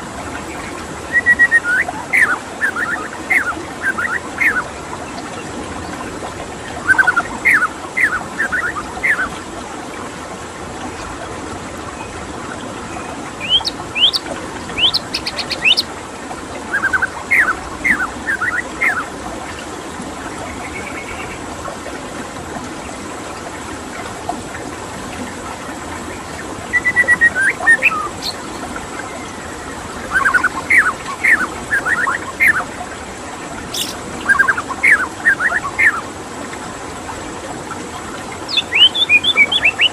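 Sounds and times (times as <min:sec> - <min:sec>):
running water: 0:00.0 - 0:39.9
bird singing whistled notes: 0:00.4 - 0:04.6, 0:06.8 - 0:09.3, 0:13.4 - 0:14.2, 0:14.8 - 0:15.8, 0:16.7 - 0:19.1, 0:26.7 - 0:28.6, 0:30.1 - 0:32.6, 0:33.7 - 0:36.0, 0:38.5 - 0:39.9.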